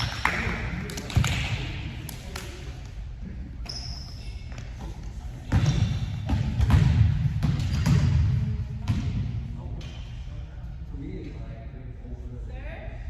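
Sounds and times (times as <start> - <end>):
volleyball thuds and bounces: 5.5 - 9.3.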